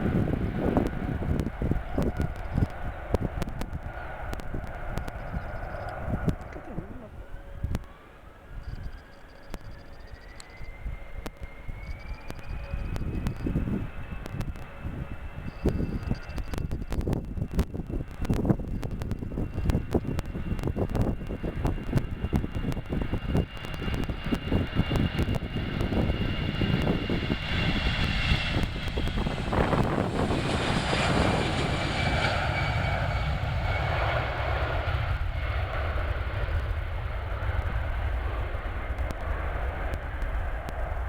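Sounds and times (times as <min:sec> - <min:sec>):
jet airliner passing: 0:00.0 - 0:41.0.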